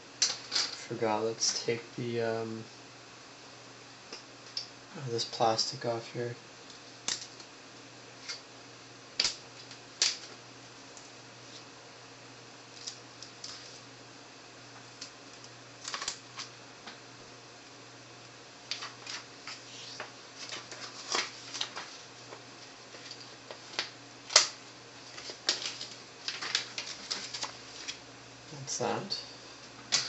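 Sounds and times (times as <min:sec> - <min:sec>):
plastic film sharp snap: 0:09.2 - 0:09.4
plastic film peeling and crinkling: 0:15.4 - 0:16.5, 0:18.7 - 0:28.0.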